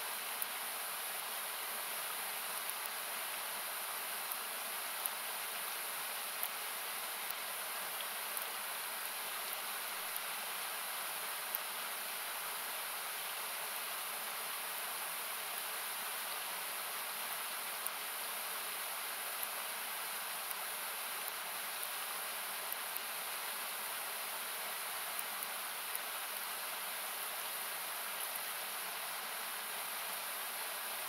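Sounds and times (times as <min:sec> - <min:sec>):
campfire crackles: 0:00.1 - 0:14.0.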